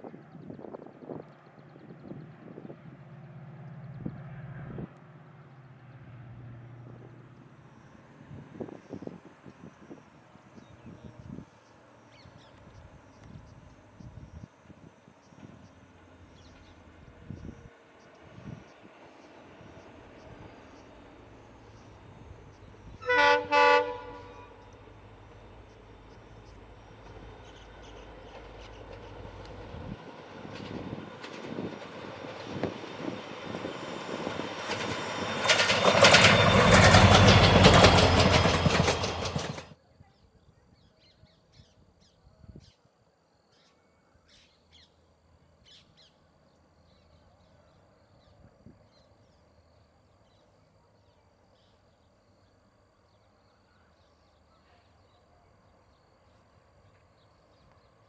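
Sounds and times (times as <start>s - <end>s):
train wheels clattering: 24.5s - 39.7s.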